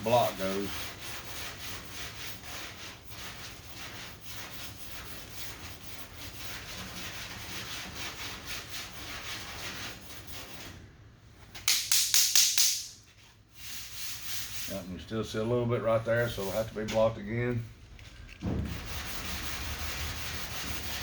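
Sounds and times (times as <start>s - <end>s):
sandpaper rubbing on panel: 0.0s - 10.8s, 13.1s - 14.9s, 16.2s - 17.1s, 18.6s - 21.0s.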